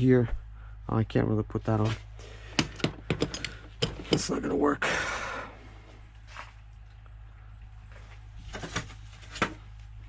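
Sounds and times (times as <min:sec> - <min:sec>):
low steady hum: 0:00.0 - 0:10.0
hand tools clicking and knocking: 0:02.5 - 0:04.5.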